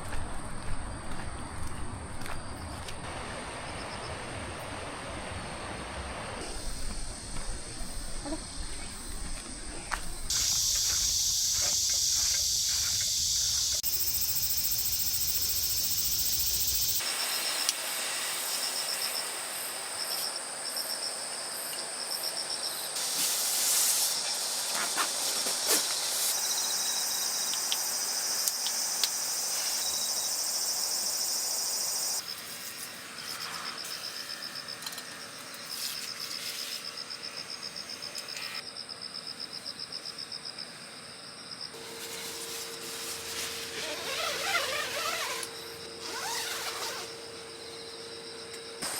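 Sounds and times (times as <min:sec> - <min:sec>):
insects buzzing and chirping: 0:00.0 - 0:48.9.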